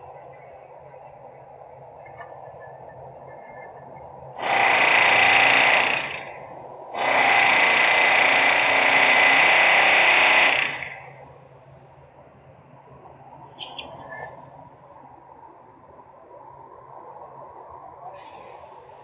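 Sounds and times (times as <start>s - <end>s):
low background drone: 0.0s - 19.0s
harsh grating machine noise: 4.4s - 11.2s.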